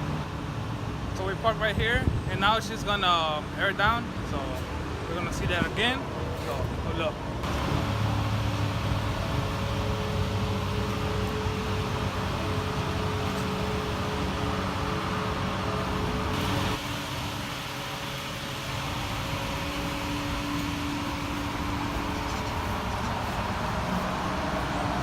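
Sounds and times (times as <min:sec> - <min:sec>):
car idling hum: 0:07.0 - 0:25.0.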